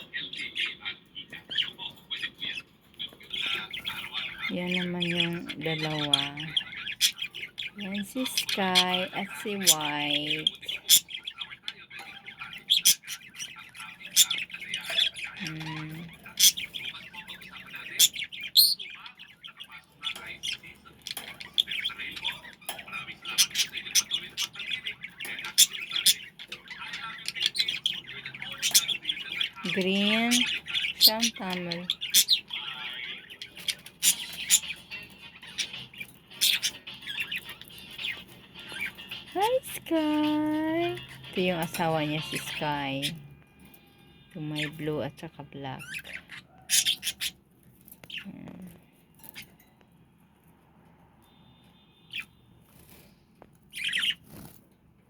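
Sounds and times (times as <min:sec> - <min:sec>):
loud bird squawks: 0:00.0 - 0:43.2, 0:44.4 - 0:47.4
lovebirds twittering: 0:00.0 - 0:50.5, 0:51.2 - 0:55.0.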